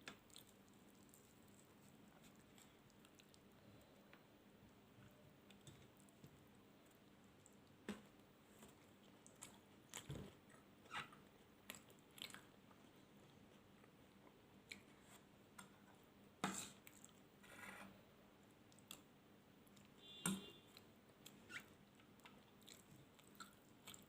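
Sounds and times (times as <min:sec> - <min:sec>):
person chewing: 0:00.1 - 0:03.9, 0:08.5 - 0:10.6, 0:11.6 - 0:13.0, 0:20.7 - 0:24.0.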